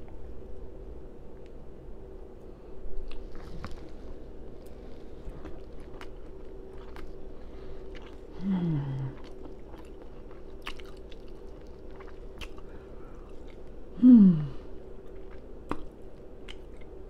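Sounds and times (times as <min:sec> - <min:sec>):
open-mouthed chewing and lip smacking: 0:07.8 - 0:13.8, 0:15.0 - 0:17.0.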